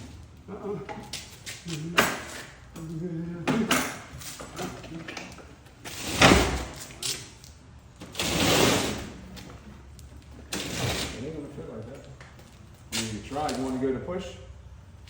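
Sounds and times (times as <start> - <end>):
refrigerator scraping along floor: 5.9 - 7.0, 8.0 - 9.3, 10.4 - 11.4.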